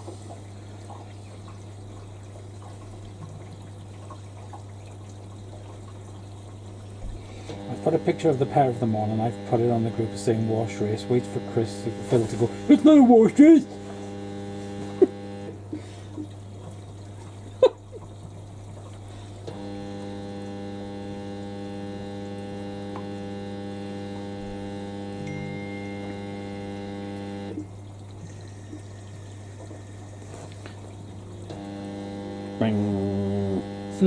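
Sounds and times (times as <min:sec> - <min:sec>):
multi-pitch humming tone: 0:00.0 - 0:17.1, 0:19.4 - 0:34.0
steady electric hum: 0:00.0 - 0:34.0
water pouring into drums: 0:00.0 - 0:34.0.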